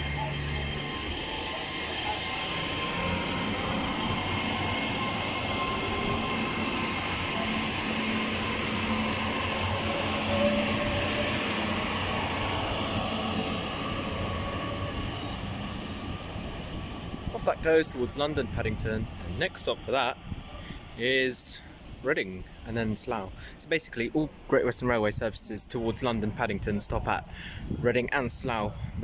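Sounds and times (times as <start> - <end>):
coaches rumbling on rails: 0.0 - 21.0
train engine whine: 0.0 - 26.7.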